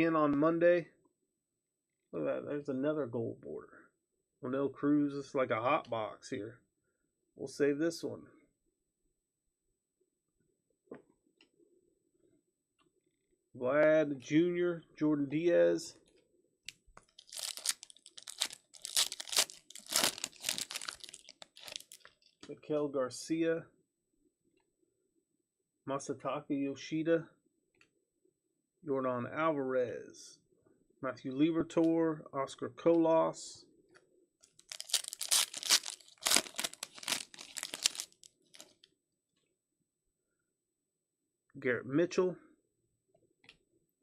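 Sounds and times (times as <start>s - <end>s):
wrapper crinkling: 17.1s - 22.3s, 34.5s - 38.8s.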